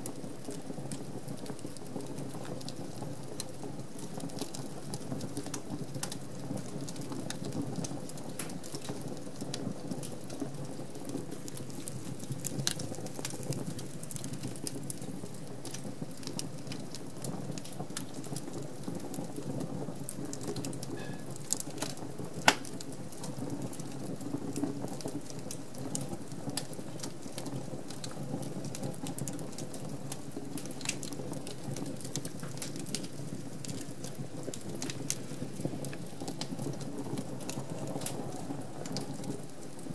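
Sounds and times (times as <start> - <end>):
wood fire crackling: 0.0 - 39.9
flame rushing: 20.4 - 22.9
loud fire pop: 22.4 - 22.8.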